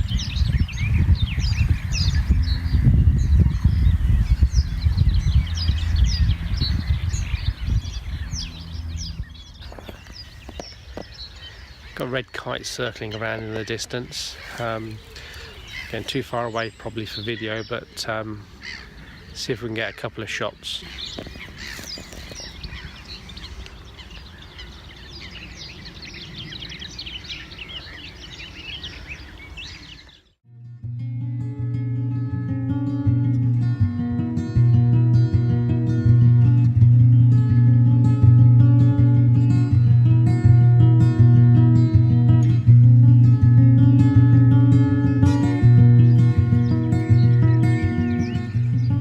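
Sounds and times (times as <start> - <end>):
small birds chirping and singing: 0.0 - 30.4, 31.2 - 49.0.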